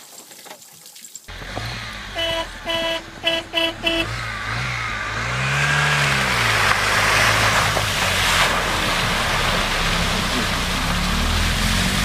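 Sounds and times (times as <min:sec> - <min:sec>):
engine revving: 0:01.3 - 0:12.0
vehicle horn honking: 0:02.0 - 0:04.2.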